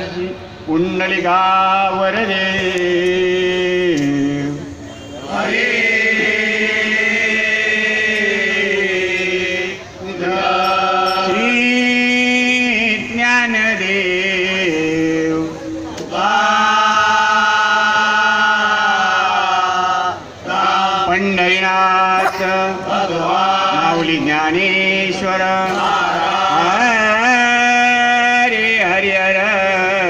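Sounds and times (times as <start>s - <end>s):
voices singing devotional song: 0.0s - 30.0s.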